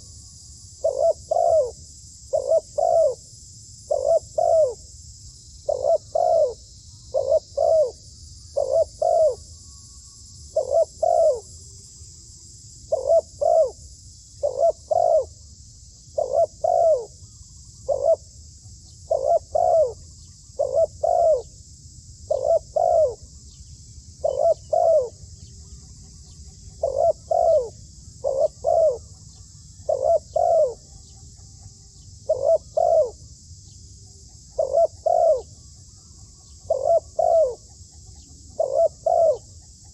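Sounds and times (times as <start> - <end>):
dove cooing: 0.8 - 3.2, 3.9 - 4.8, 5.6 - 9.5, 10.5 - 11.5, 12.9 - 13.8, 14.4 - 15.4, 16.1 - 18.3, 19.0 - 21.5, 22.3 - 23.3, 24.2 - 33.3, 34.3 - 39.9.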